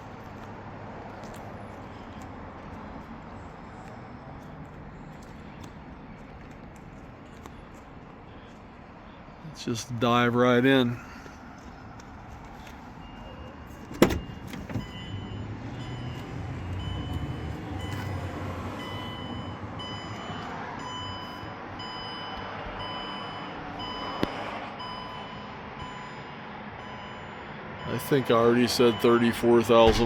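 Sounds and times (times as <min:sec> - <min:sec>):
van door latch clacking: 0:13.8 - 0:15.0.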